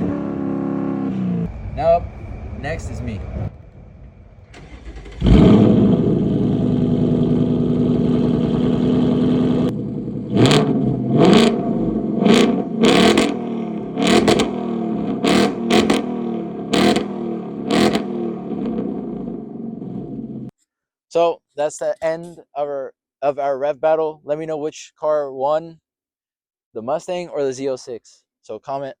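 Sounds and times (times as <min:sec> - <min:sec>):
engine revving in throttle blips: 0:00.0 - 0:20.5
car engine idling: 0:00.9 - 0:15.2.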